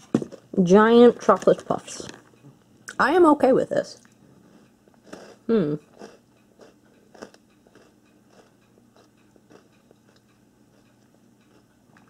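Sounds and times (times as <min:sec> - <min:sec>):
crunching snack: 0:05.0 - 0:12.0.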